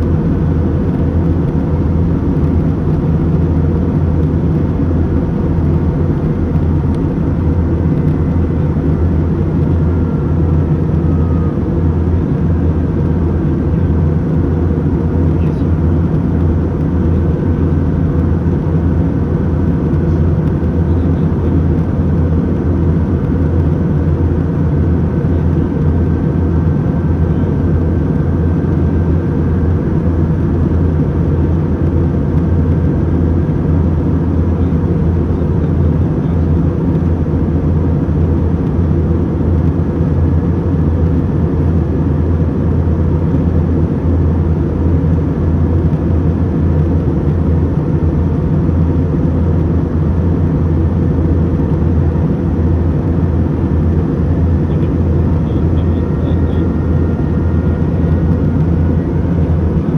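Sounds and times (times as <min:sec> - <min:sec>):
airliner cabin drone: 0:00.0 - 0:59.9.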